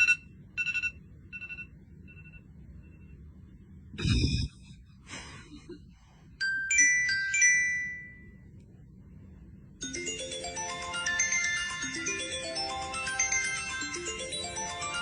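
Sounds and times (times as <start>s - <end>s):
electronic ringtone chimes: 9.8s - 15.0s.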